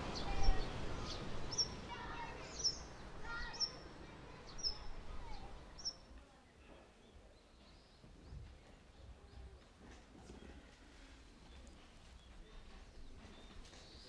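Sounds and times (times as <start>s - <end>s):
bird chirping: 0.0s - 6.1s, 11.4s - 14.0s
faint distant voices: 0.0s - 14.0s.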